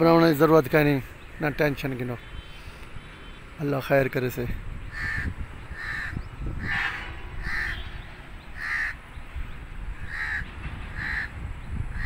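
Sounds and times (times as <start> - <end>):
bird calling: 4.8 - 12.0.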